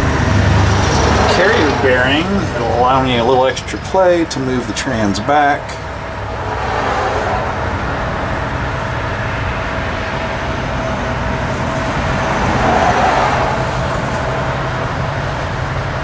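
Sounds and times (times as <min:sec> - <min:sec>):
low mechanical drone: 0:00.0 - 0:16.0
faint whine: 0:01.3 - 0:12.6.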